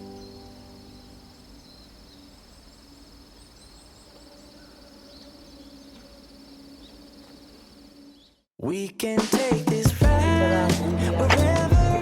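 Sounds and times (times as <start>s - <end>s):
crickets trilling: 0.0s - 8.4s
strummed guitar: 9.4s - 12.0s.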